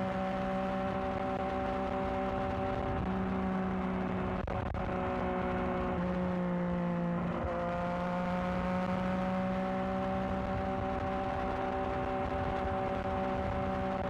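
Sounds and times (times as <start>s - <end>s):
motorcycle engine riding: 0.0s - 14.0s.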